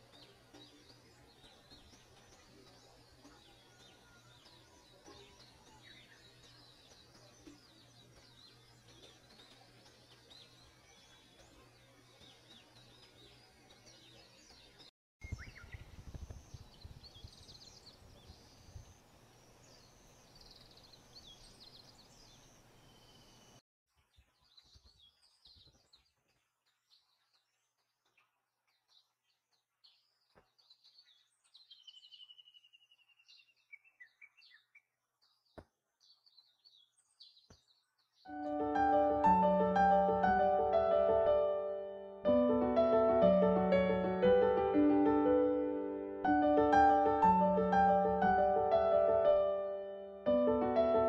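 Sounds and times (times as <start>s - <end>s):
small birds chirping and whistling: 0.0s - 42.0s
outdoor background noise: 0.0s - 51.0s
piano music: 38.3s - 51.0s.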